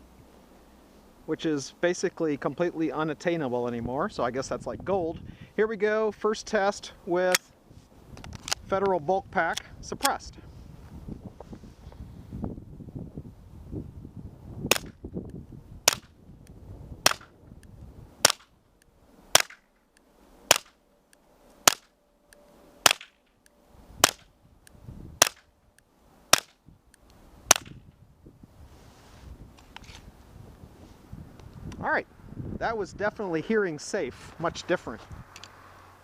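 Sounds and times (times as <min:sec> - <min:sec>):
suppressed pistol shots: 0:14.7 - 0:15.0, 0:15.8 - 0:16.1, 0:17.0 - 0:17.3, 0:18.2 - 0:18.5, 0:19.3 - 0:19.6, 0:20.5 - 0:20.8, 0:21.6 - 0:21.9, 0:22.8 - 0:23.2, 0:24.0 - 0:24.3, 0:25.2 - 0:25.5, 0:26.3 - 0:26.6, 0:27.5 - 0:27.8.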